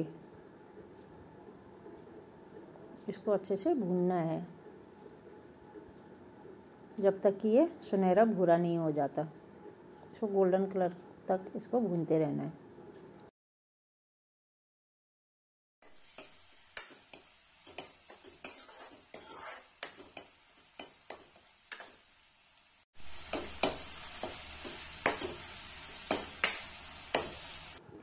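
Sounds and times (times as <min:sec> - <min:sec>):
onion sizzling in hot oil: 0:15.8 - 0:27.8
spatula clicking against metal pan: 0:19.8 - 0:21.9, 0:23.3 - 0:24.4, 0:25.0 - 0:25.4, 0:26.0 - 0:27.4.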